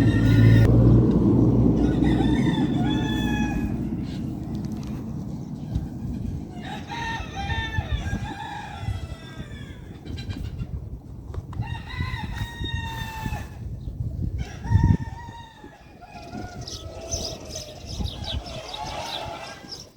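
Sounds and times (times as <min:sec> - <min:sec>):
rooster crowing: 0:00.0 - 0:00.7, 0:01.7 - 0:04.2, 0:06.5 - 0:09.9, 0:11.6 - 0:13.6, 0:14.4 - 0:17.4
low steady rumble: 0:00.0 - 0:09.0.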